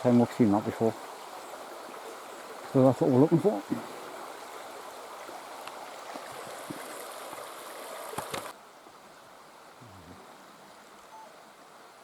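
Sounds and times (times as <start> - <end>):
quiet outdoor ambience: 0.0 - 12.0
rushing noise like running water: 0.0 - 12.0.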